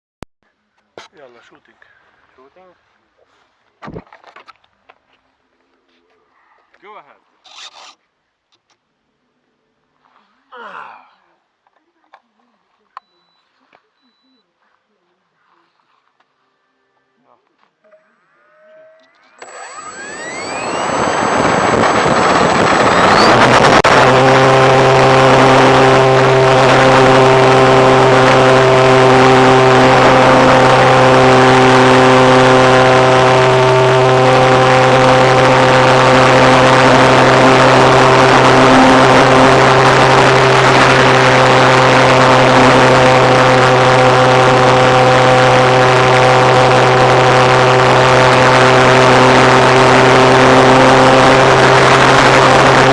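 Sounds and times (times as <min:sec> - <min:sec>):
model airplane engine whine: 0:18.6 - 0:52.9.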